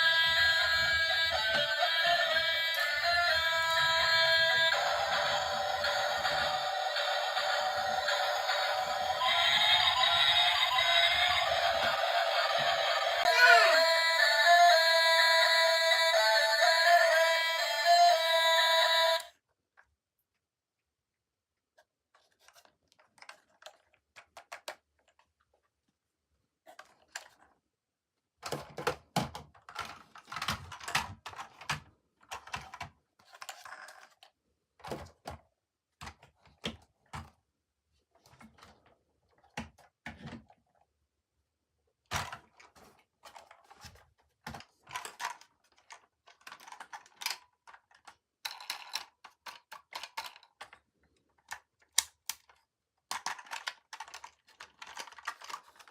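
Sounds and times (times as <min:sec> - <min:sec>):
plastic and cardboard crinkling: 0:22.0 - 0:26.0, 0:42.2 - 0:55.9.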